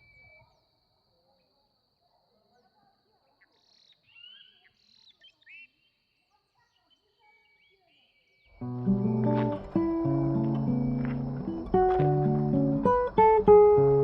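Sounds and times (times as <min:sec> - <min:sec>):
small birds chirping: 0:02.5 - 0:14.0.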